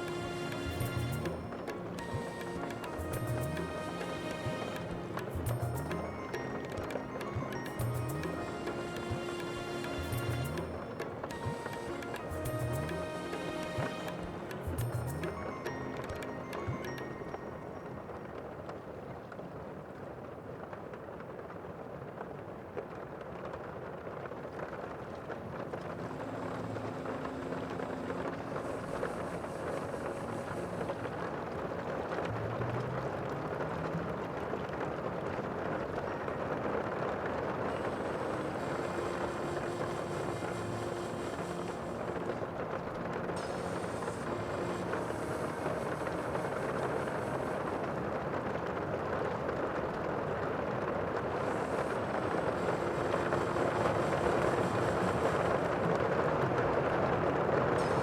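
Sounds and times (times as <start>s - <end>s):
sea wash: 25.5s - 58.0s.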